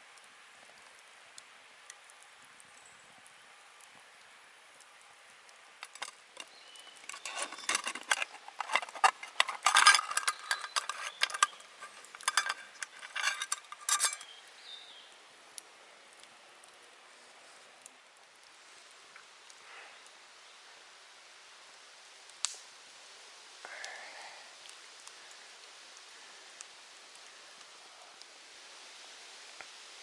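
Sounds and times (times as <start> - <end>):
metal cookware clinking: 5.8 - 14.3.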